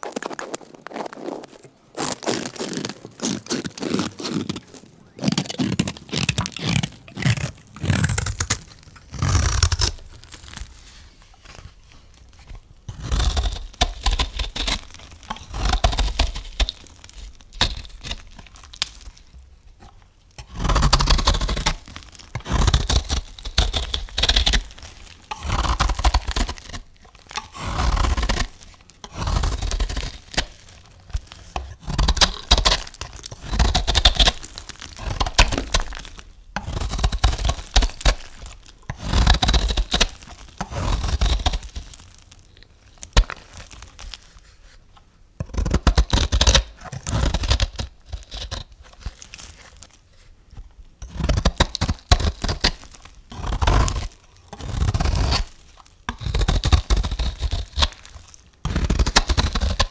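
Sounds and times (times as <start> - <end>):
knife cutting through soap: 0.0 - 10.8, 20.4 - 42.2.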